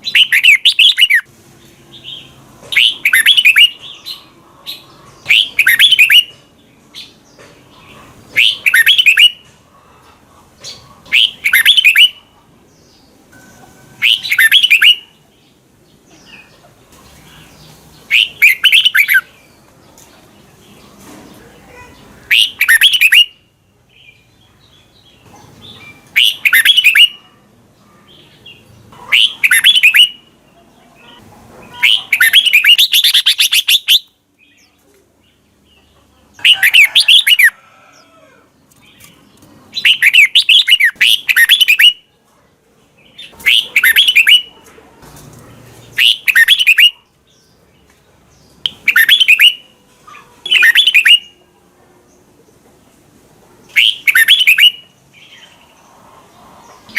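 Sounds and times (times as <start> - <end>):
bird singing whistled phrases: 0.1 - 1.3, 2.8 - 3.8, 5.3 - 6.3, 8.4 - 9.4, 11.2 - 12.2, 14.0 - 15.1, 18.1 - 19.3, 22.3 - 23.4, 26.2 - 27.2, 29.2 - 30.2, 39.8 - 42.0, 43.5 - 44.5, 46.0 - 47.0, 48.7 - 49.6, 50.5 - 51.4, 53.8 - 54.9.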